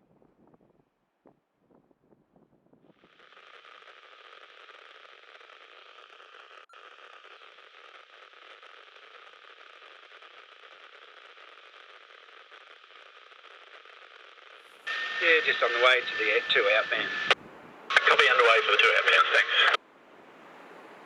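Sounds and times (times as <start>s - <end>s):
radio static hiss: 3.0s - 19.8s.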